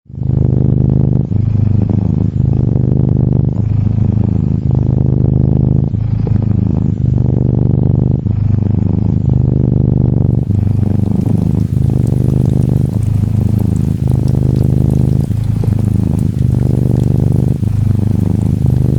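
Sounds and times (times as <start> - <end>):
gentle rain: 10.2 - 18.9
kitten purring: 10.2 - 18.9.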